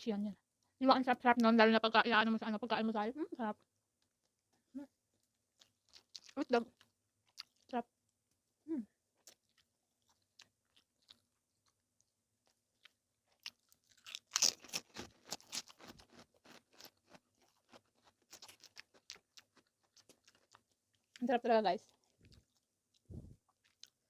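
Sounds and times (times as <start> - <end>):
person chewing food: 3.7 - 8.4, 9.1 - 21.2, 21.9 - 24.0.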